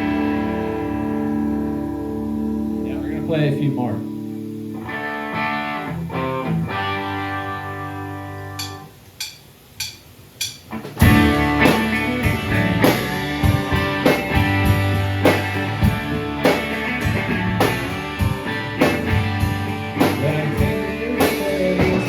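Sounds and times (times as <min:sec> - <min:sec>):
rock band playing: 0:00.0 - 0:22.0
count-in clicks: 0:08.6 - 0:10.7.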